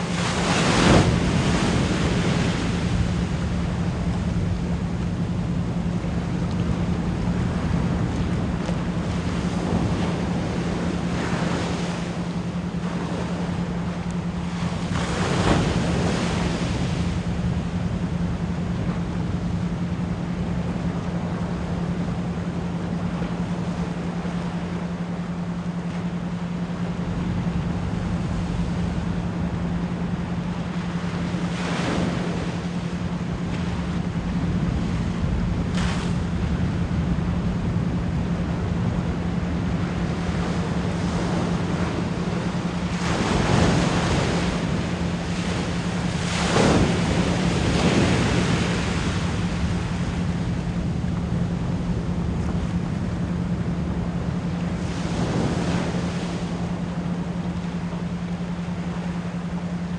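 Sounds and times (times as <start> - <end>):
ocean surf washing: 0.0 - 59.9
low pure tone: 15.6 - 59.9.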